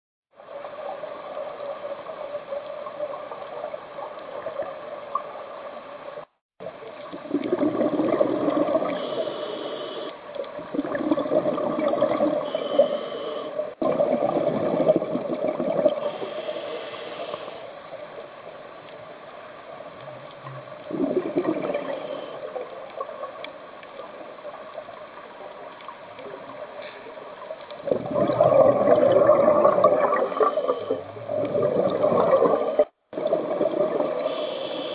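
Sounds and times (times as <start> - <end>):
bubbles rushing underwater: 7.0 - 9.0, 10.5 - 12.4, 13.8 - 16.0, 20.4 - 23.4, 27.8 - 34.3.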